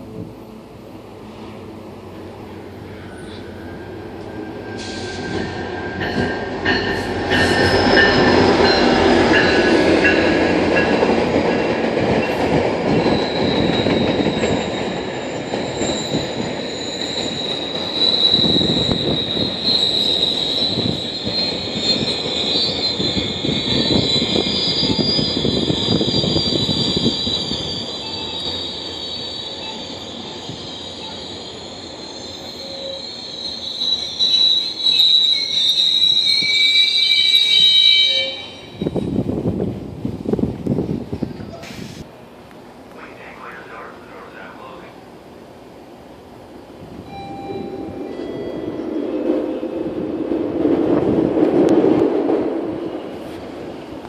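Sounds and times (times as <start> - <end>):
train rumble: 0.0 - 28.7, 38.8 - 54.0
high wheel squeal: 2.9 - 9.9, 12.9 - 39.1.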